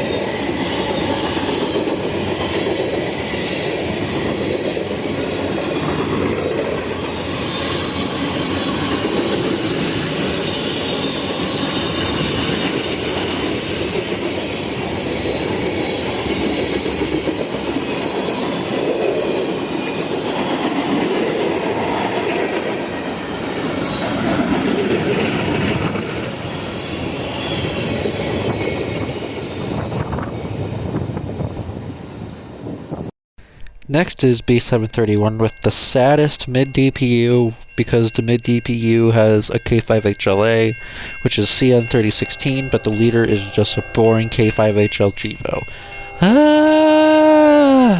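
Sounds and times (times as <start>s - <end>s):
faint high wheel squeal: 0.0s - 4.7s, 6.9s - 20.8s, 26.4s - 30.8s
wheels clicking over rail joints: 0.0s - 29.4s
train rolling past: 0.0s - 47.9s.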